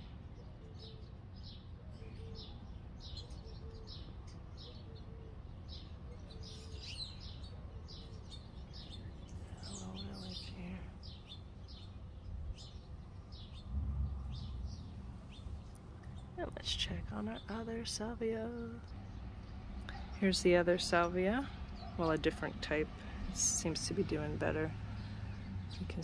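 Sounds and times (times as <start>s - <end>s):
small bird chirping: 0.0s - 17.5s
steady low rumble: 9.1s - 26.0s.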